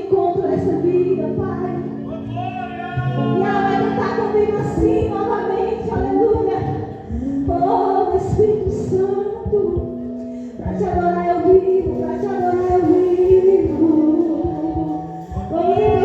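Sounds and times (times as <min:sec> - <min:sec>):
sustained instrumental accompaniment: 0:00.0 - 0:07.4
voices singing slow melody: 0:00.0 - 0:08.4, 0:09.1 - 0:16.0.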